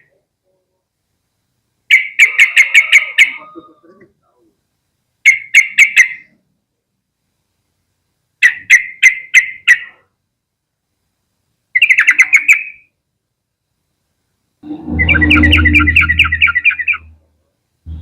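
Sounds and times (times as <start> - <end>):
bird chattering calls: 14.6 - 17.2.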